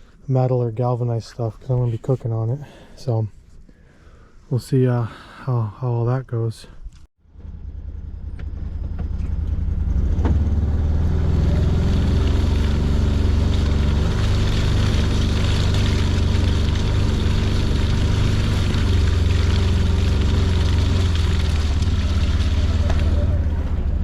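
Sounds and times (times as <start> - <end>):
utility vehicle engine droning: 7.2 - 24.0.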